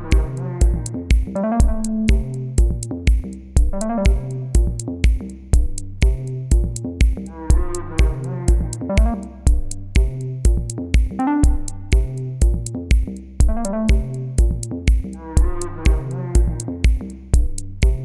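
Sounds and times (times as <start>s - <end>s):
synthesizer melody: 0.0s - 2.6s, 7.6s - 9.6s, 11.2s - 12.1s, 13.5s - 14.4s
drum machine beat: 0.0s - 18.0s.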